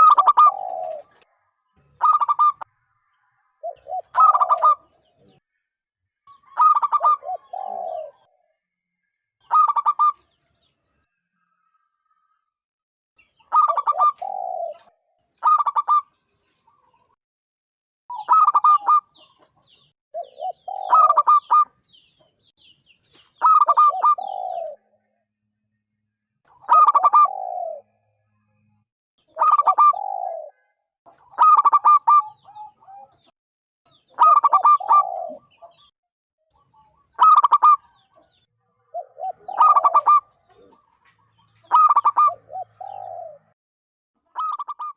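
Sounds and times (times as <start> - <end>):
dove cooing: 0.0 - 1.3, 2.0 - 2.7, 3.6 - 4.9, 6.4 - 8.4, 9.5 - 10.2, 13.5 - 16.1, 20.2 - 21.7, 23.4 - 25.0, 26.6 - 28.0, 29.3 - 33.3, 34.1 - 35.9, 37.2 - 38.3, 38.9 - 40.9, 41.7 - 43.6, 44.4 - 44.9.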